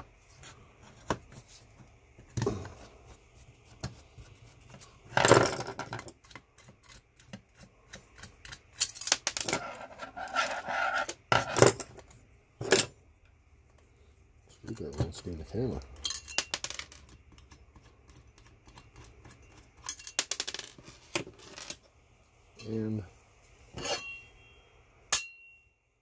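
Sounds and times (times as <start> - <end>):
metal parts clicking and clinking: 8.8 - 12.0, 15.8 - 17.6, 19.8 - 20.8
metal scraping: 9.4 - 11.9, 23.7 - 24.3
faint ringing: 22.5 - 26.0.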